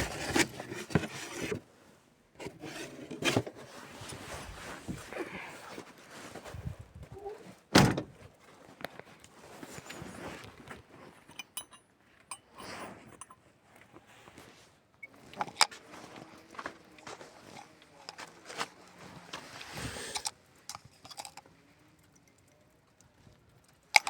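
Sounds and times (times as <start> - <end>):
knocks and clinks from handling: 11.0 - 13.4, 20.2 - 21.4.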